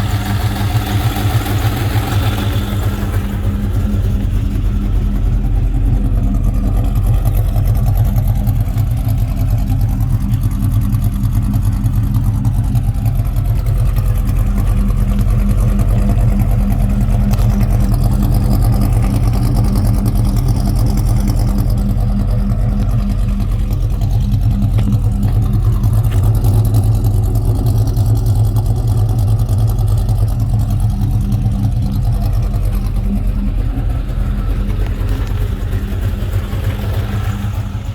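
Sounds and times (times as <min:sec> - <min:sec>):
car engine idling: 0:00.0 - 0:37.9
engine ticking clacking: 0:00.0 - 0:37.9.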